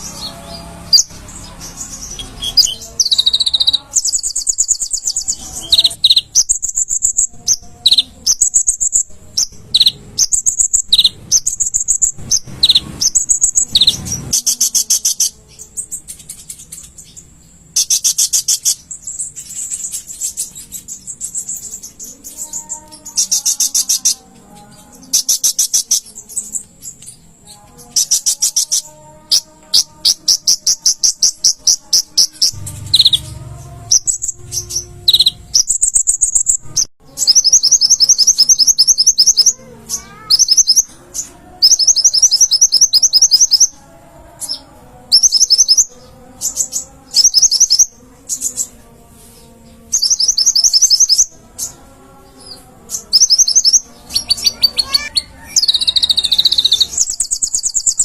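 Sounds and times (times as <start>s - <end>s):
bird trilling: 0.0s - 15.4s, 16.7s - 24.4s, 27.9s - 43.8s, 50.0s - 51.8s, 53.0s - 58.0s.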